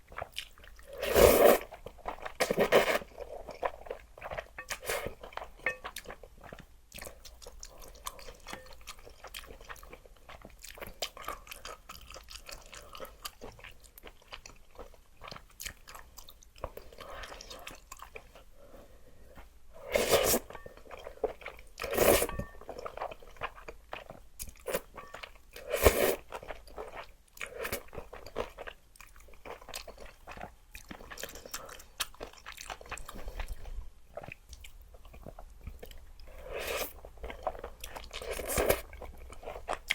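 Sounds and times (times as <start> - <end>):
chewing and crunching: 0.0 - 1.0, 1.6 - 19.6, 20.4 - 39.9
noodle slurps: 0.9 - 1.7.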